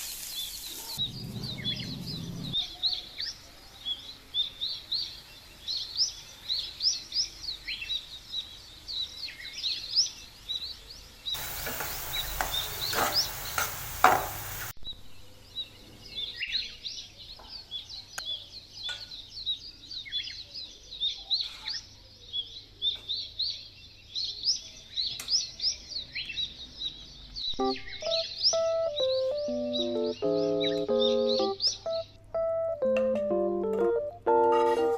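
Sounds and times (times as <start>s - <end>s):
loud hiss with clicks: 0.0s - 1.0s, 11.4s - 14.8s
small birds chirping: 0.0s - 34.5s.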